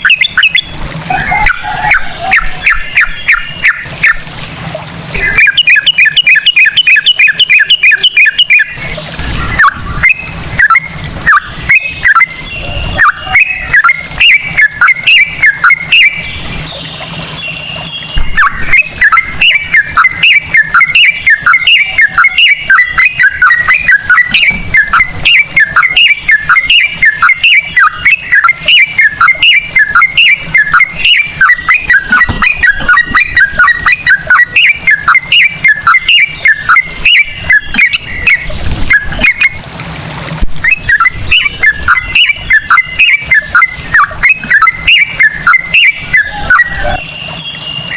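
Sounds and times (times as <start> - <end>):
bird singing chattering notes: 0.0 - 47.9.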